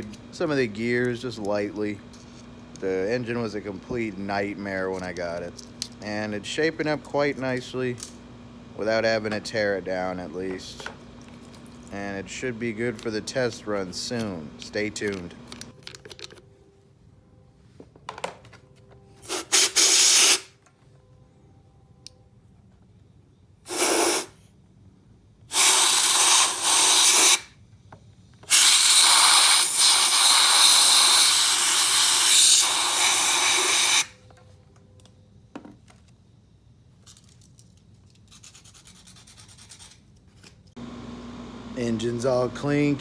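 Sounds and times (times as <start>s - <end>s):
cleaning spray hissing: 19.2s - 20.5s, 23.7s - 24.4s, 25.5s - 27.5s, 28.5s - 34.1s.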